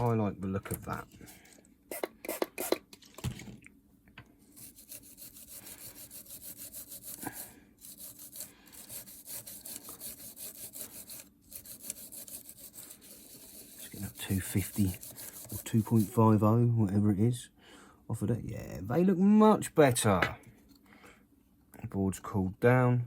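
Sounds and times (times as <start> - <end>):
brush scrubbing: 4.5 - 16.5.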